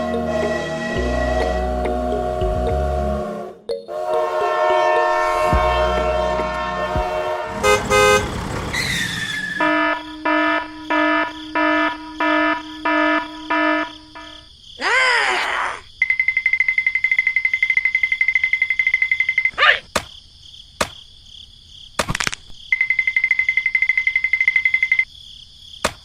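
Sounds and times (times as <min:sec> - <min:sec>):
swooping tone: 0:00.0 - 0:07.6
held multi-note horn tone: 0:00.0 - 0:14.4
short repeated honks: 0:03.9 - 0:08.5, 0:09.3 - 0:14.3.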